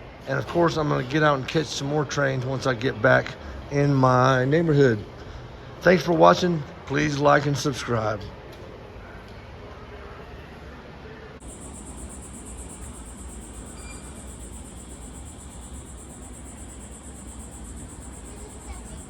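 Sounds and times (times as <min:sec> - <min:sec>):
low traffic rumble: 0:00.0 - 0:19.0
cicadas droning: 0:11.4 - 0:19.0.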